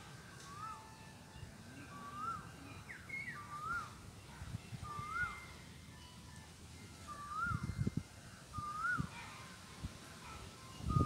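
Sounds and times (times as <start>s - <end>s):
bird whistling rising and falling: 0.5s - 0.9s, 1.9s - 4.0s, 4.8s - 5.5s, 7.1s - 7.8s, 8.6s - 9.1s.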